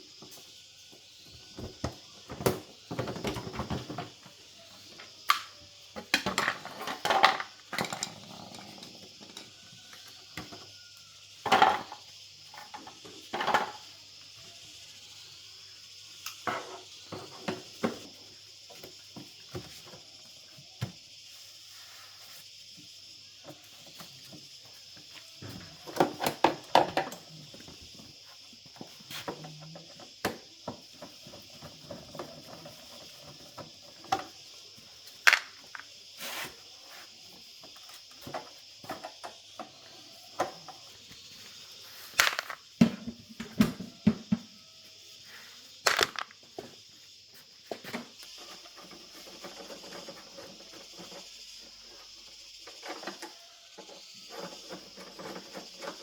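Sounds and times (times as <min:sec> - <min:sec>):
hard objects clicking and clattering: 0:06.1 - 0:08.7, 0:35.2 - 0:35.9, 0:42.1 - 0:42.6, 0:45.8 - 0:46.4.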